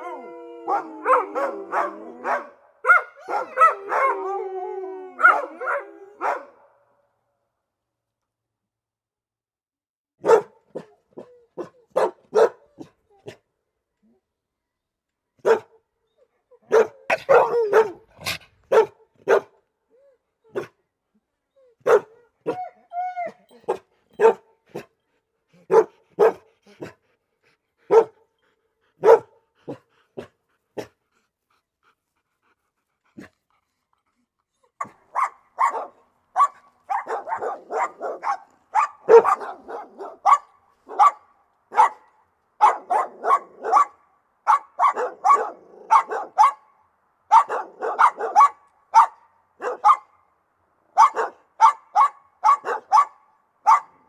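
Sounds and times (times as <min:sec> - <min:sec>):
dog barking: 0:00.7 - 0:04.2, 0:05.2 - 0:06.8, 0:10.2 - 0:10.9, 0:11.6 - 0:12.9, 0:15.4 - 0:15.8, 0:16.7 - 0:19.6, 0:21.8 - 0:22.2, 0:23.7 - 0:24.9, 0:25.7 - 0:26.9, 0:27.9 - 0:28.2, 0:29.0 - 0:29.8, 0:34.8 - 0:46.7, 0:47.3 - 0:50.2, 0:51.0 - 0:54.0.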